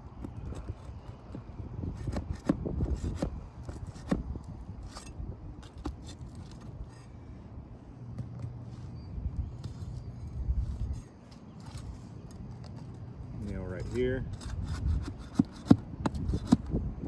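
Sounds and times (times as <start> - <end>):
metal tool scraping shingles: 0.2 - 4.2, 4.8 - 7.2, 9.6 - 16.7.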